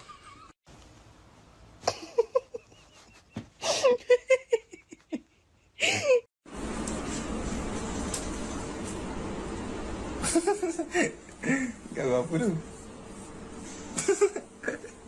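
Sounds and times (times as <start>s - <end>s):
person laughing: 1.8s - 6.3s, 10.2s - 11.8s, 14.0s - 15.0s.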